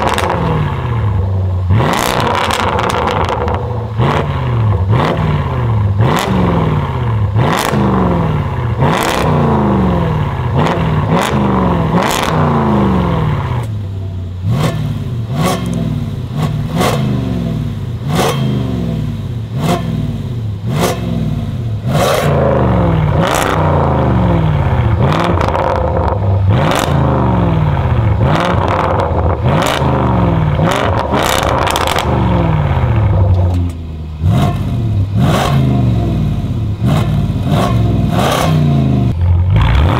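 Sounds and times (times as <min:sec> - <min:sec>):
exhaust cracks: 0:00.0 - 0:05.2, 0:21.7 - 0:39.9
car engine revving: 0:00.0 - 0:39.9.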